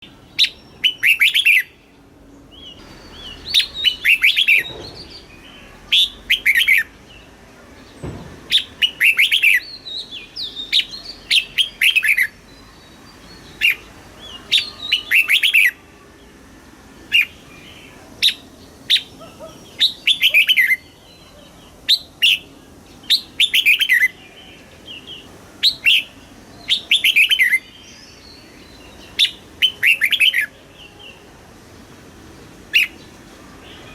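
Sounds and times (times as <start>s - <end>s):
bird whistling song: 0.3s - 1.8s, 2.5s - 6.9s, 8.5s - 12.6s, 13.5s - 15.8s, 18.2s - 22.5s, 23.1s - 24.2s, 25.1s - 27.8s, 29.1s - 30.5s, 32.7s - 33.1s.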